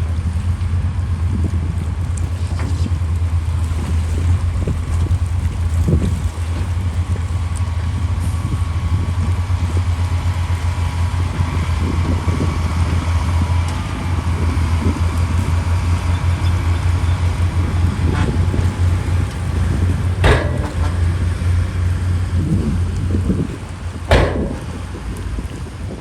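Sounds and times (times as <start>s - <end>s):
heavy diesel engine running: 0.0s - 26.0s
sharp metal clanks: 20.2s - 21.1s, 24.1s - 24.8s.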